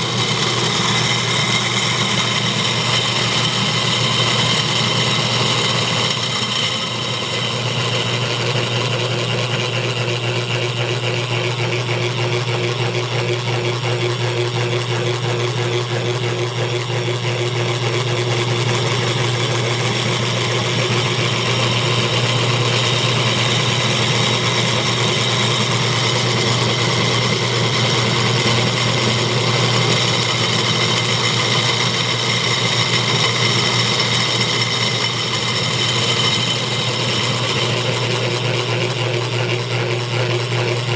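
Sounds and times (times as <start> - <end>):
electric motor humming and whining: 0.0 - 40.9.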